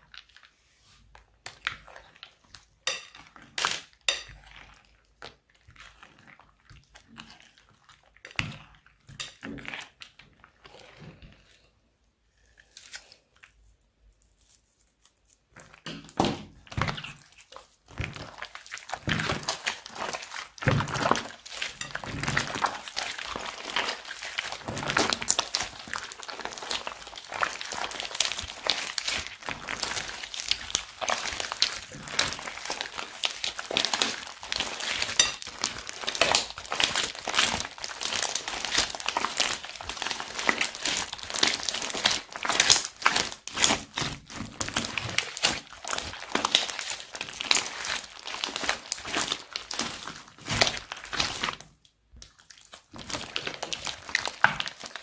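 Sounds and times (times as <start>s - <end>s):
slime squeezed by hand: 16.4s - 51.6s.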